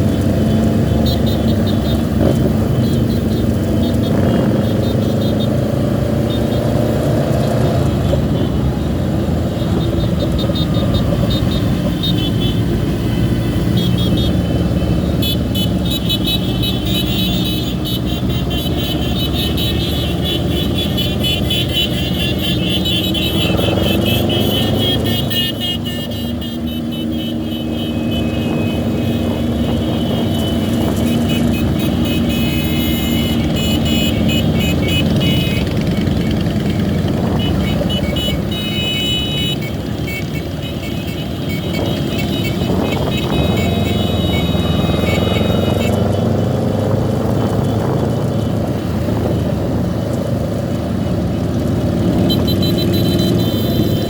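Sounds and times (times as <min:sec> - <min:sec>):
motorcycle engines running: 0:00.0 - 0:54.0
road noise: 0:00.0 - 0:54.0
wind noise: 0:41.6 - 0:50.5.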